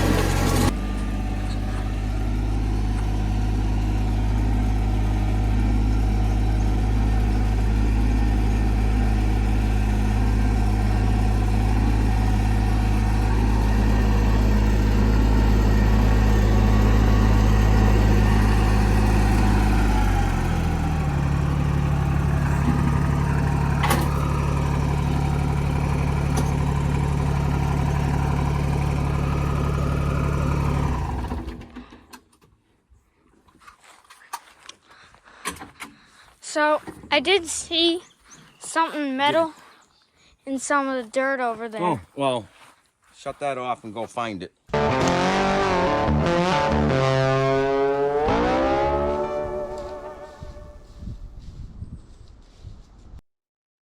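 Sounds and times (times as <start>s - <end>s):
tractor diesel engine running: 0.0s - 31.9s, 44.7s - 51.0s.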